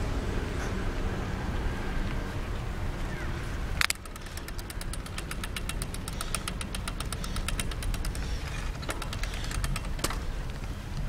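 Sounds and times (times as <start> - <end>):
rumble of wheels and wind: 0.0 - 11.0
bicycle freewheel ticking: 3.9 - 10.7.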